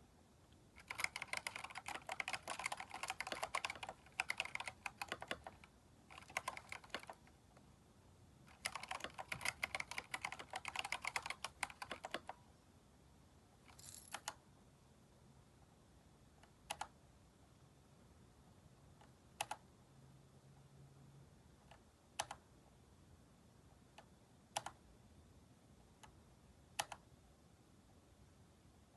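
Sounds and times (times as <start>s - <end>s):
typing on mechanical keyboard: 0.8s - 7.3s, 8.5s - 12.4s, 13.7s - 14.4s, 16.6s - 17.0s, 19.4s - 19.6s, 21.7s - 22.4s, 24.5s - 24.8s, 26.8s - 27.0s.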